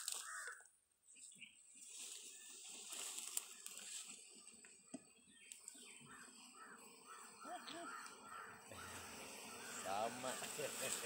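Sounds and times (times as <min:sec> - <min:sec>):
faint birds calling: 0:00.0 - 0:11.0.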